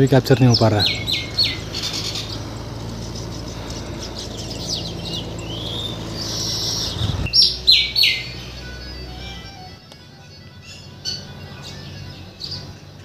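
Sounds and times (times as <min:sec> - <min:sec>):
loud sharp bird calls: 0:00.0 - 0:09.8, 0:10.4 - 0:12.8
birds chirping: 0:00.0 - 0:13.0.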